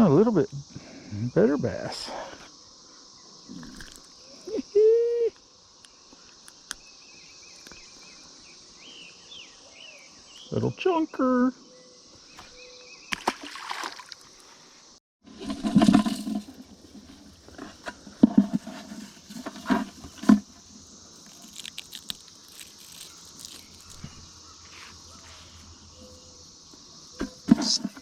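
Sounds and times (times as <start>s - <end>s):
cicada chorus drone: 0.0s - 28.0s
water splash: 13.1s - 14.4s.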